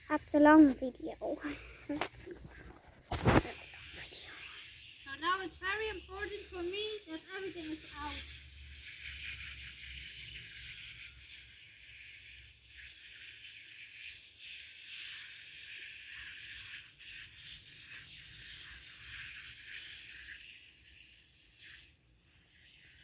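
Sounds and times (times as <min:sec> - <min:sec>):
brush rubbing through hair: 0:01.8 - 0:08.2.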